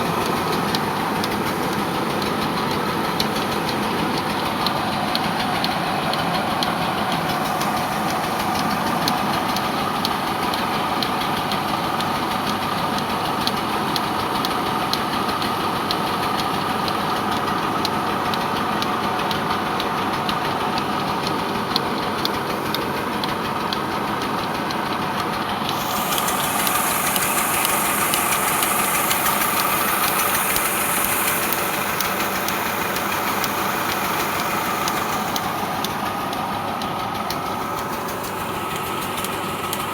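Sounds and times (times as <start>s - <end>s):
high hiss: 0.0s - 17.3s, 25.6s - 39.9s
tractor diesel engine clattering: 0.0s - 39.9s.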